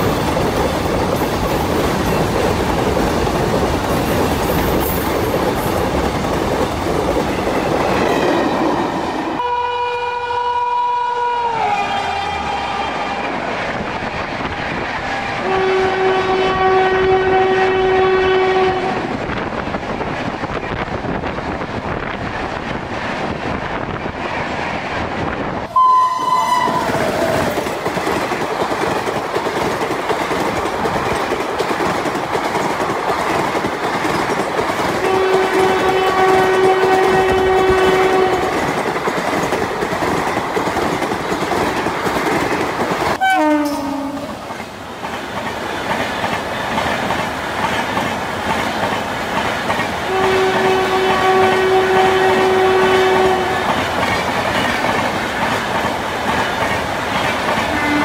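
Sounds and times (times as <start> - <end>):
trains passing at speed: 0.0 - 58.0
locomotive horn: 9.4 - 13.3, 15.1 - 19.1, 25.7 - 27.1, 35.0 - 38.6, 43.2 - 44.4, 50.1 - 53.7, 57.7 - 58.0.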